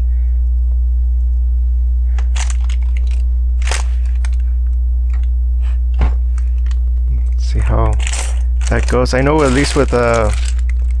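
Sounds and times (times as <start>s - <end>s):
low electrical hum: 0.0s - 11.0s
plastic bricks clicking and rattling: 2.2s - 4.4s, 7.9s - 11.0s.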